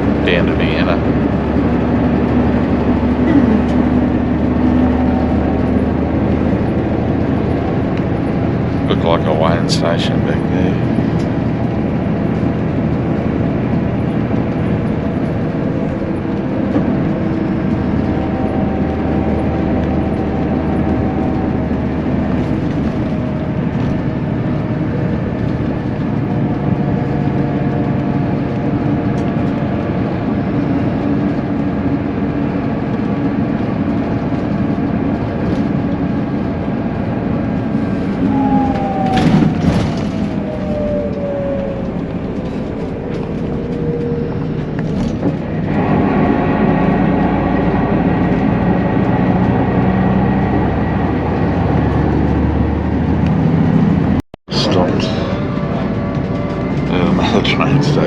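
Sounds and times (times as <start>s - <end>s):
faint engine tones: 0.0s - 58.0s
vehicle interior road noise: 0.0s - 58.0s
tone falling in pitch: 38.2s - 44.7s.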